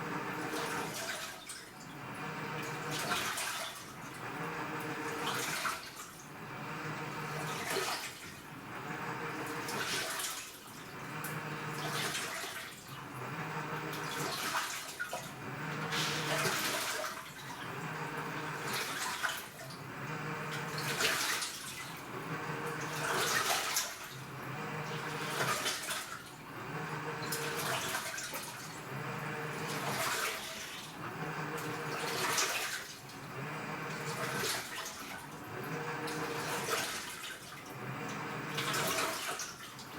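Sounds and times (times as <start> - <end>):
washing machine motor humming: 0.0 - 39.9
water churning and splashing: 0.5 - 1.7, 2.8 - 4.1, 5.2 - 6.2, 9.5 - 13.2, 13.9 - 19.8, 20.4 - 26.5, 27.2 - 37.8, 38.4 - 39.9.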